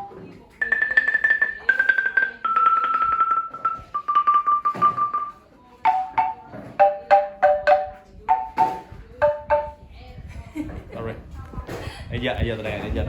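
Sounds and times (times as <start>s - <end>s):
xylophone strikes: 0.0s - 9.8s.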